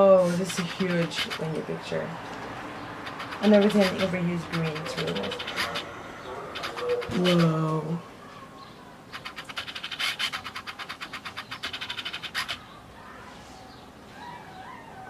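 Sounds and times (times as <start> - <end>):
rapid dry scratching: 0.0 - 1.7, 3.0 - 7.8, 9.1 - 12.8.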